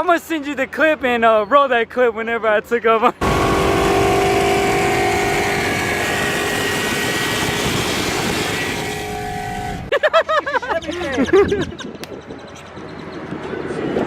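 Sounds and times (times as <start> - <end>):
motor vehicle noise: 3.2 - 9.9.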